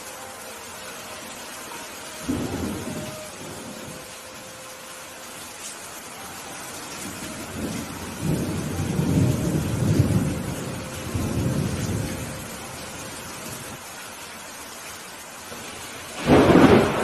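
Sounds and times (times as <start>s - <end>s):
steady rain: 0.0s - 17.0s
thunder rumbling: 2.2s - 4.2s, 6.8s - 13.8s, 15.6s - 17.0s.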